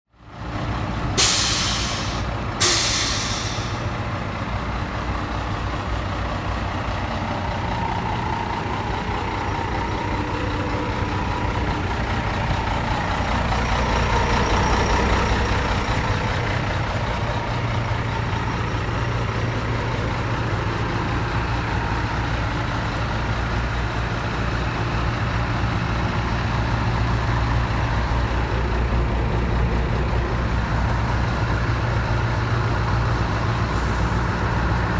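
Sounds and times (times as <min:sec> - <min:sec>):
truck diesel engine running: 0:00.3 - 0:34.9
brake air hiss: 0:01.2 - 0:04.0.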